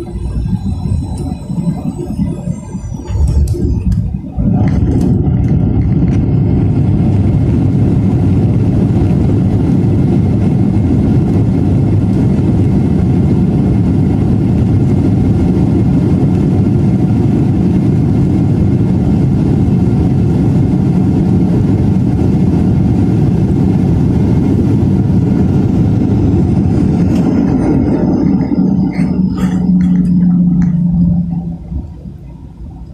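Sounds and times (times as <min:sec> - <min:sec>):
jet engines roaring in reverse thrust: 0:00.0 - 0:32.9.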